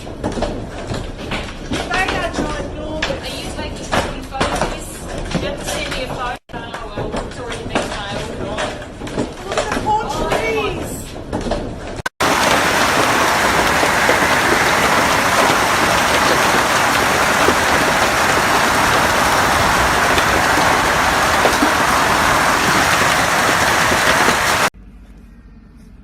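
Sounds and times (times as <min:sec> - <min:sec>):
heavy rain pounding: 0:12.2 - 0:24.7.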